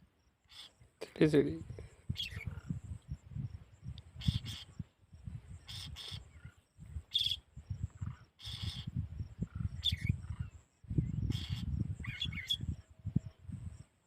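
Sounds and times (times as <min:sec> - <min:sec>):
bird chirps: 0:00.4 - 0:00.8, 0:02.1 - 0:03.2, 0:04.2 - 0:04.8, 0:05.5 - 0:13.4
wind on microphone: 0:01.4 - 0:14.0.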